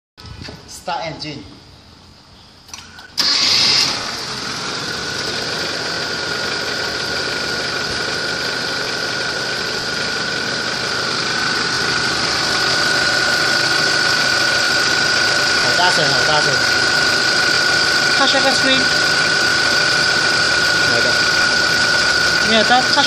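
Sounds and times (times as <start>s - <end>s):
engine starting and running: 2.7s - 23.0s.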